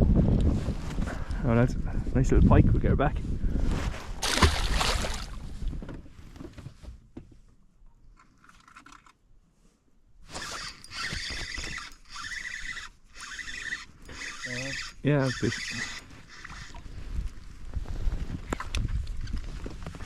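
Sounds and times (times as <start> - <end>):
fishing reel whirring: 10.3 - 16.8.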